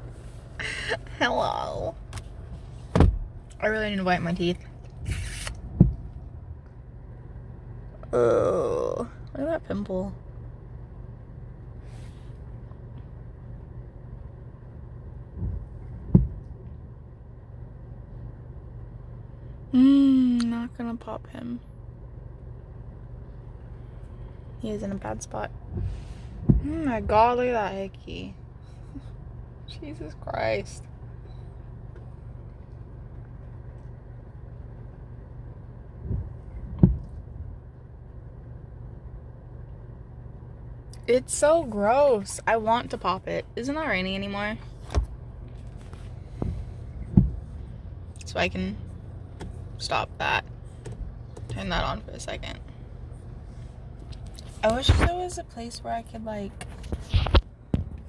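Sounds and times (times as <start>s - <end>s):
low background hum: 0.0s - 58.0s
low rumbling background noise: 0.0s - 58.0s
dull knocks: 2.8s - 3.6s.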